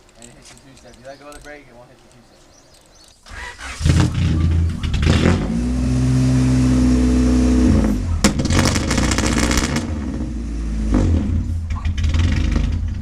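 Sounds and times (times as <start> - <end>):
car engine revving: 3.3 - 13.0
sharp crack and crackling: 8.2 - 9.9.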